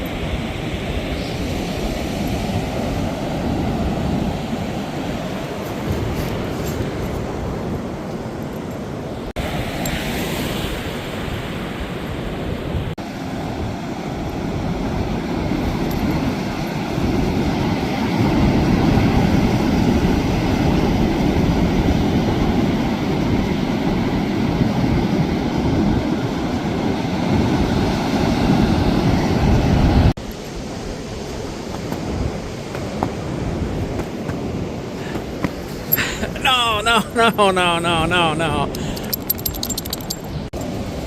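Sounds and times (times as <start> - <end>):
surf roaring: 30.7 - 41.0.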